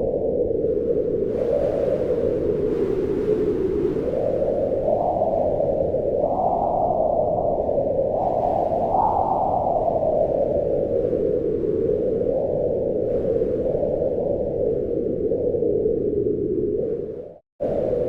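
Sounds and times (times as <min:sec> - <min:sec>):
wind blowing with low moan: 0:00.0 - 0:18.0.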